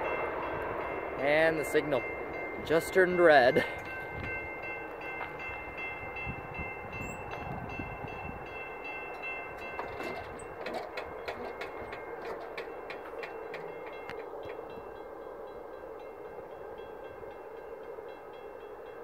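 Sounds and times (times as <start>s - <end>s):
distant train rumbling: 0.0s - 19.0s
level-crossing bell ringing: 0.0s - 19.0s
train wheel clicks: 9.1s - 14.9s.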